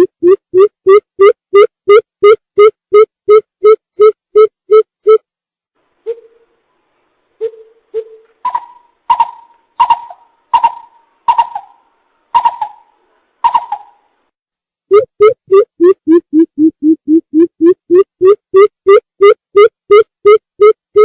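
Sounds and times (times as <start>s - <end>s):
bird hooting: 6.1s - 6.5s, 7.4s - 14.1s.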